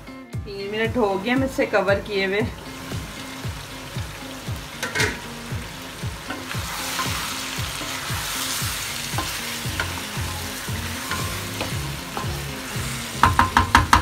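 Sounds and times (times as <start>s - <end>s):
food sizzling in hot oil: 1.0s - 14.0s
wooden spatula stirring food: 6.2s - 14.0s
spatula clicking against pan: 13.2s - 14.0s.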